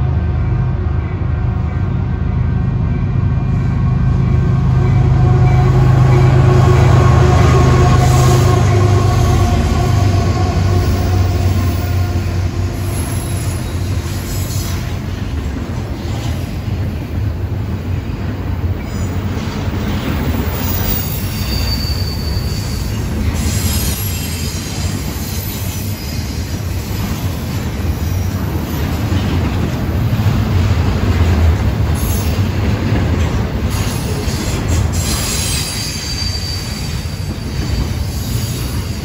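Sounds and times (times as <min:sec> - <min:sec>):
freight train wheels rumbling: 0:00.0 - 0:39.0
high wheel squeal: 0:20.2 - 0:28.3, 0:33.7 - 0:39.0.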